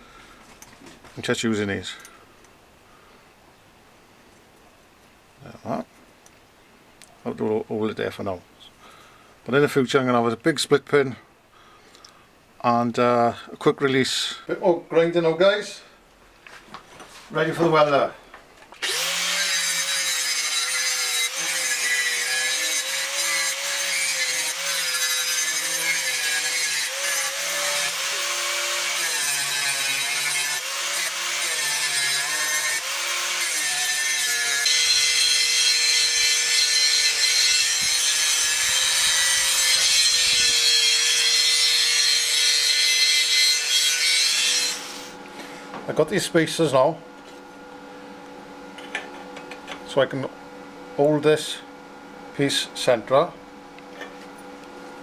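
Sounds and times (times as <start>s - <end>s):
angle grinder grinding steel: 18.8s - 45.6s.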